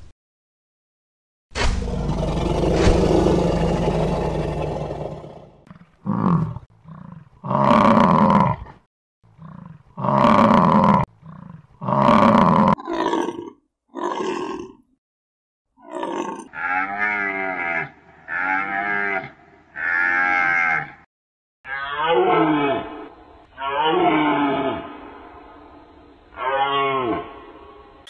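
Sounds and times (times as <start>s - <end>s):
big cat roaring: 1.8s - 8.8s, 9.4s - 14.8s, 15.8s - 21.0s.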